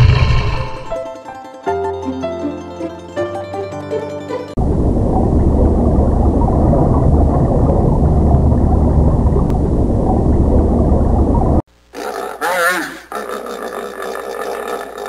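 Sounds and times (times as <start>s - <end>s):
water rumbling and gurgling: 0.0s - 1.0s, 4.6s - 11.7s.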